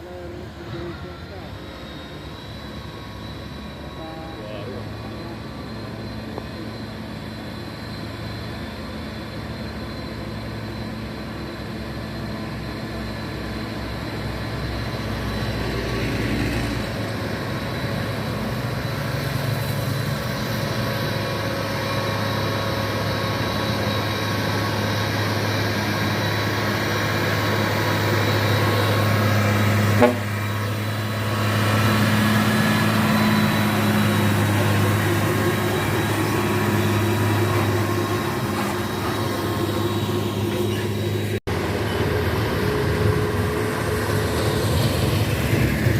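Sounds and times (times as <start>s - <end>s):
diesel truck engine labouring: 13.4s - 45.9s.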